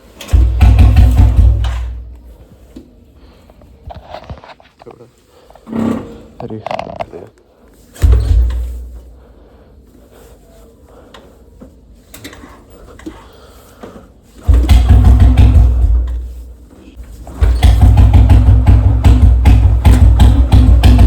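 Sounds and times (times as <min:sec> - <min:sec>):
motorcycle engine thudding: 0:00.1 - 0:02.8, 0:07.9 - 0:09.2, 0:14.4 - 0:21.0.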